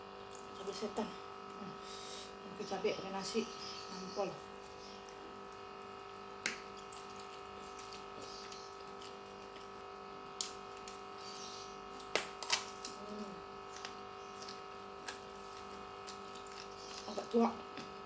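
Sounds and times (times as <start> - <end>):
electrical hum: 0.0 - 18.0
person chewing food: 6.4 - 9.8, 13.7 - 17.1.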